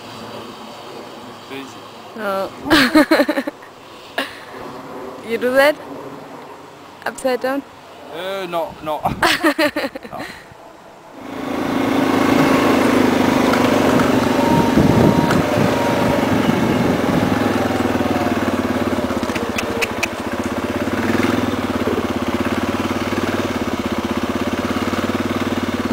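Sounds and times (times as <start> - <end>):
small motor engine running: 11.2 - 25.9.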